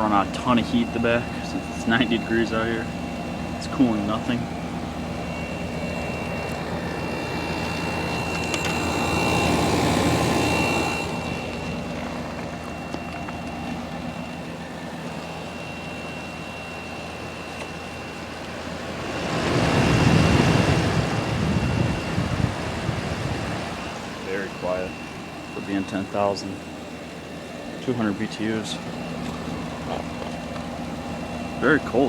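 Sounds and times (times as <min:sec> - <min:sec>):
air conditioner humming: 0:00.0 - 0:32.0.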